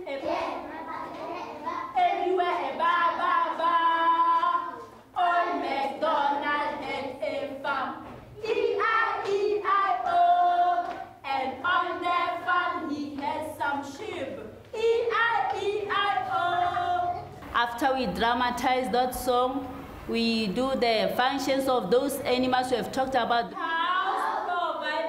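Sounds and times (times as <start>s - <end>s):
children singing together: 0.0s - 17.4s, 23.5s - 25.0s.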